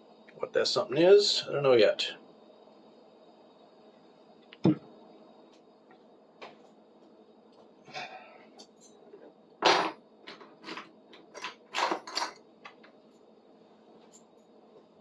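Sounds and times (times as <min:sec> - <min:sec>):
metal tools clinking and knocking: 0:08.8 - 0:12.8.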